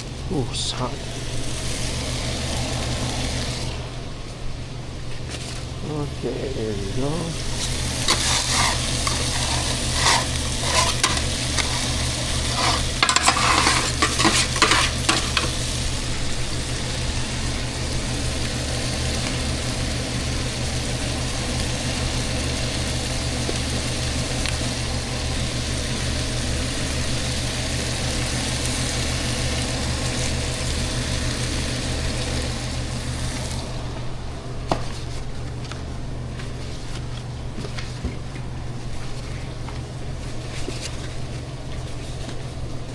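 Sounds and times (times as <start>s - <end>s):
food sizzling in a pan: 0.5s - 4.0s, 6.8s - 33.8s
utensils clattering against pan: 7.6s - 15.6s.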